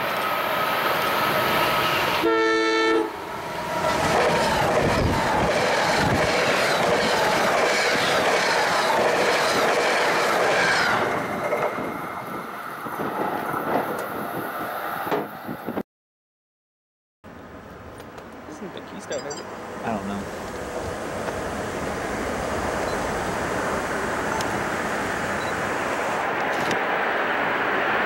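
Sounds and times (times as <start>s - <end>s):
train horn blast: 1.9s - 3.2s
rhythmic train wheel clatter: 3.8s - 11.8s.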